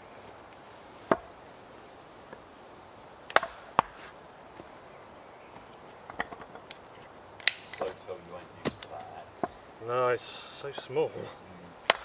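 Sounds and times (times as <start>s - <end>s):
axe chopping wood: 3.3s - 4.0s, 8.6s - 9.6s.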